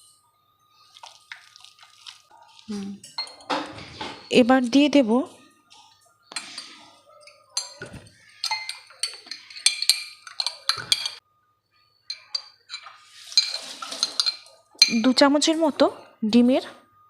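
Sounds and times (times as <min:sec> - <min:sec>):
metal spoon clinking against bowl: 0:03.0 - 0:04.5, 0:06.4 - 0:11.2, 0:12.0 - 0:15.3
spoon scraping bowl: 0:06.3 - 0:11.2, 0:12.1 - 0:15.2.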